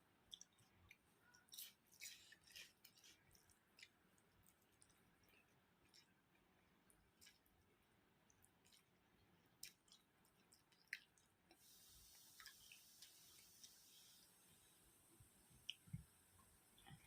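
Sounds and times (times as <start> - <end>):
chewing mouth sounds: 0.3 - 6.5
faint hiss: 11.5 - 17.0.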